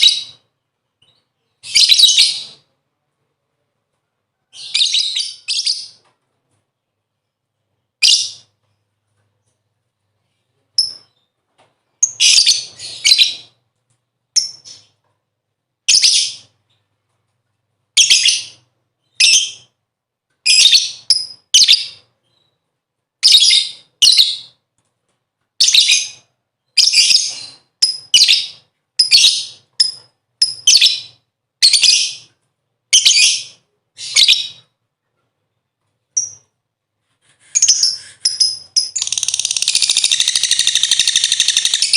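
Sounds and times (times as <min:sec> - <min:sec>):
lovebird chattering calls: 0:37.6 - 0:41.9.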